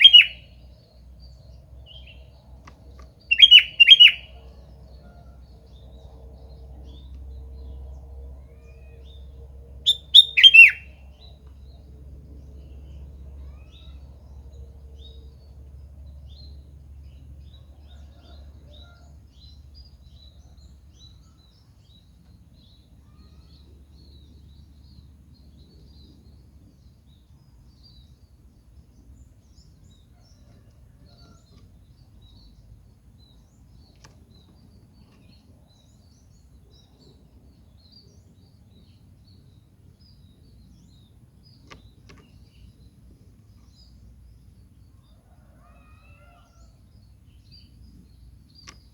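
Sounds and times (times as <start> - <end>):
faint high chirps: 9.9 - 10.9.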